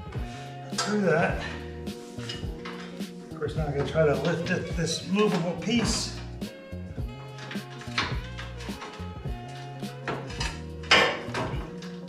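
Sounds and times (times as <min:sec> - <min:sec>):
background music low notes: 0:00.0 - 0:12.0
metal parts clinking: 0:01.5 - 0:03.2, 0:07.2 - 0:12.0.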